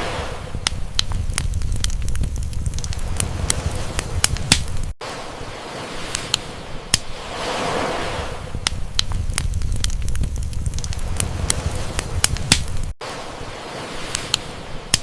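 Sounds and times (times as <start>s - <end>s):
sea wave washing: 0.0s - 15.0s
campfire crackling and popping: 0.5s - 5.0s, 6.0s - 7.2s, 8.5s - 13.0s, 14.0s - 15.0s.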